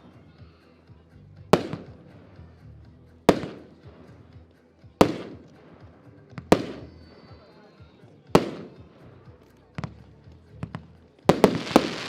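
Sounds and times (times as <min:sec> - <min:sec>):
faint firework pops: 0:01.5 - 0:02.4, 0:03.3 - 0:04.2, 0:05.0 - 0:07.1, 0:08.4 - 0:12.0
firework bangs echoing: 0:01.6 - 0:02.1, 0:03.3 - 0:04.2, 0:05.0 - 0:07.1, 0:08.4 - 0:08.9, 0:10.7 - 0:12.0.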